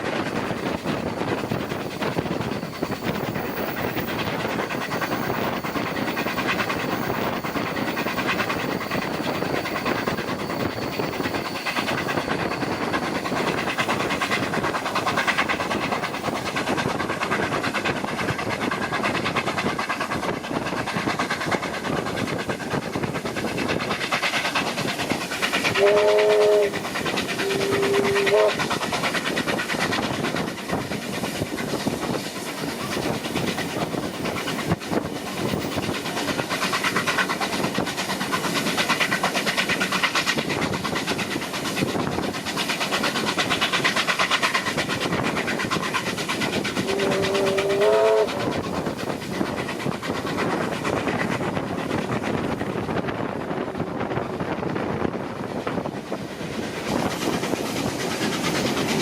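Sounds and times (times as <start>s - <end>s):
steam train clattering: 0.0s - 59.0s
train whistle: 25.7s - 26.8s, 27.4s - 28.7s, 46.8s - 48.6s.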